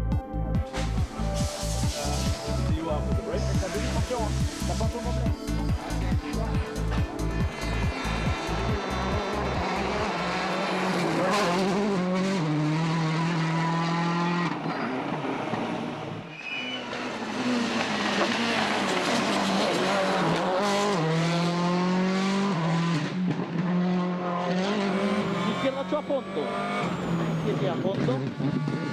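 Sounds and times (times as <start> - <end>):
rally car engine revving: 0.0 - 28.9.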